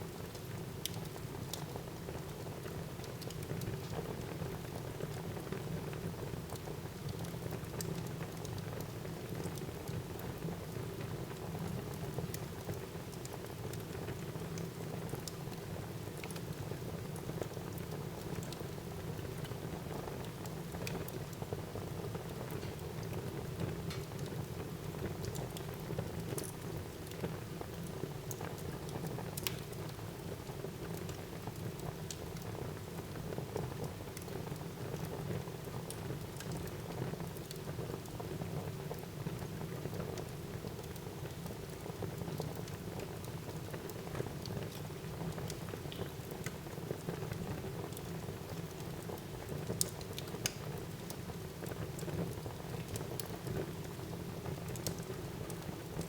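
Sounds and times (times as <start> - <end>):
wood fire crackling: 0.1 - 56.0
fire pops and snaps: 29.4 - 29.8, 48.7 - 51.3.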